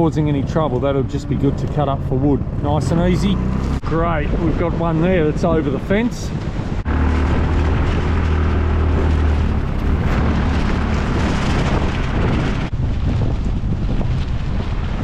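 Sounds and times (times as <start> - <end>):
vehicle engine humming: 0.0 - 4.4, 6.3 - 12.8
wind rushing on microphone: 0.0 - 15.0.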